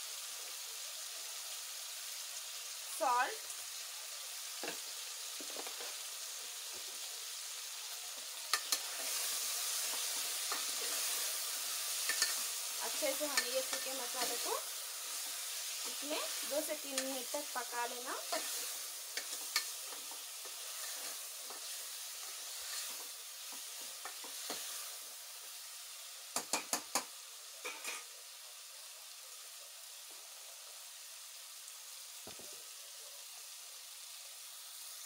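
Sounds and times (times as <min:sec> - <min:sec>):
vegetables sizzling in oil: 0:00.0 - 0:35.0.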